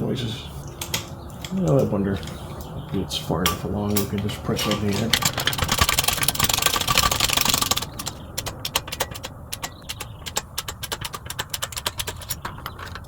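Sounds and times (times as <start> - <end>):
ratchet clicking: 4.6 - 13.0.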